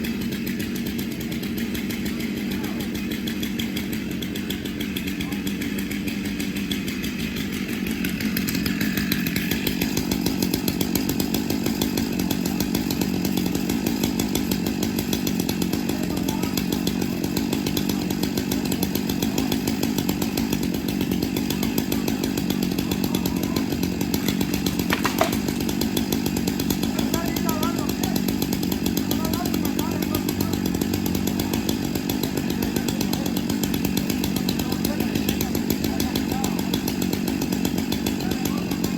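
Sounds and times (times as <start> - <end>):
chainsaw engine running: 0.0 - 38.9.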